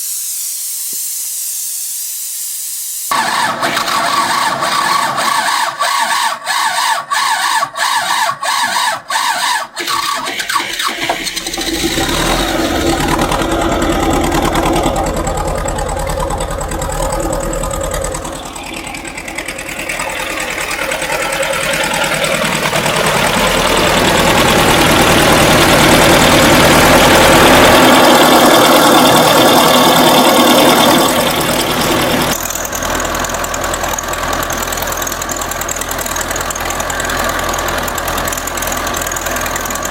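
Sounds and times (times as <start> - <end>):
tractor engine running: 3.1 - 39.9
tractor starter cranking: 3.1 - 39.9.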